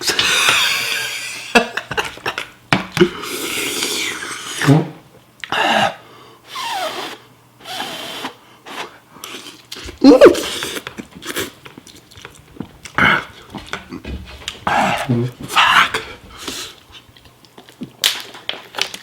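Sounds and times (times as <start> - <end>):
slurping mouth noises: 3.1 - 13.5.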